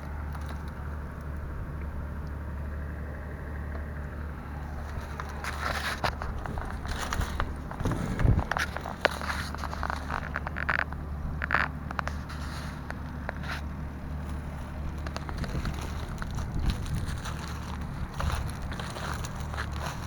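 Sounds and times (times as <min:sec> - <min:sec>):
diesel engine running: 0:00.0 - 0:20.0
short crackles and rustles: 0:04.6 - 0:20.0.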